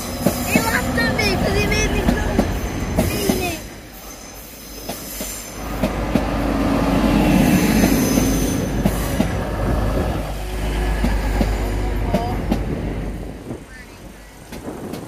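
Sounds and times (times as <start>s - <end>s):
train drive humming: 0.0s - 15.0s.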